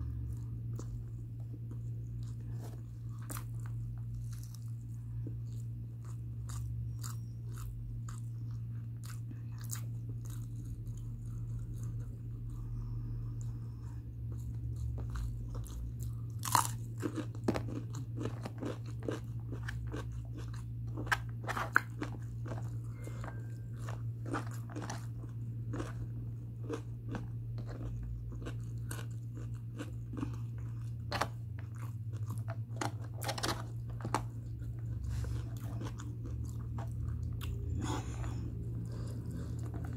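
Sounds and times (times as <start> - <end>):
person chewing wetly: 0.0 - 39.9
steady low hum: 0.0 - 39.9.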